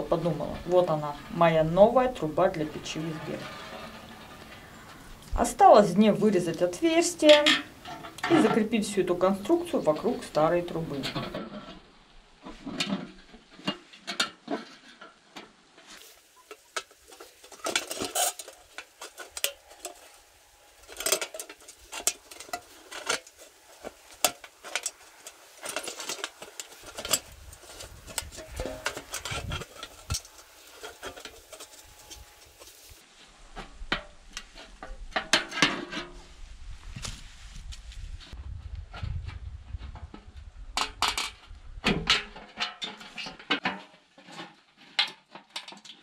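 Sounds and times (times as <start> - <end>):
metallic clinks and scrapes: 2.6 - 5.4, 15.9 - 33.0.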